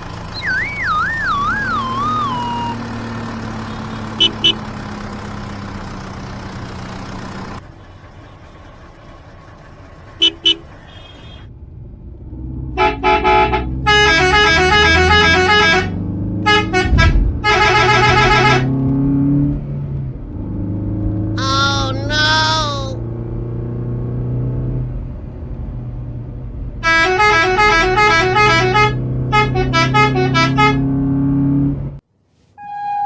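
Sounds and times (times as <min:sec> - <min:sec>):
engine hum: 0:00.0 - 0:33.0
vehicle horn honking: 0:04.2 - 0:04.6, 0:10.2 - 0:11.5, 0:12.8 - 0:18.7, 0:26.8 - 0:30.9.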